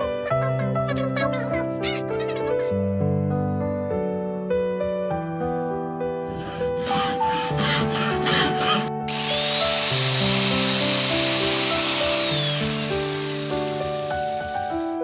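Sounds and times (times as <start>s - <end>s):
soft piano music: 0.0s - 15.0s
small motor whirring: 6.3s - 15.0s.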